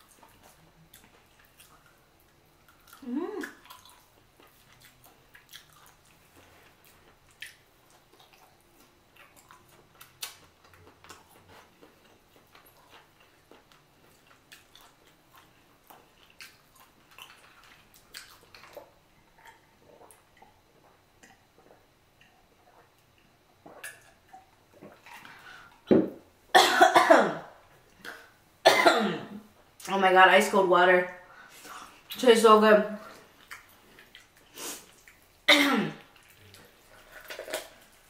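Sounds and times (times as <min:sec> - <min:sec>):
wet mouth chewing clicks: 0:02.7 - 0:06.2.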